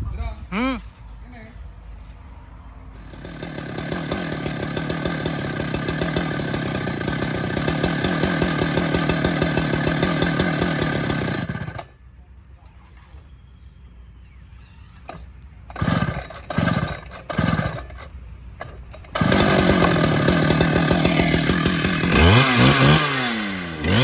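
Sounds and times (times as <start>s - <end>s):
chainsaw running hard: 3.0s - 11.9s, 15.7s - 18.1s, 19.1s - 24.0s.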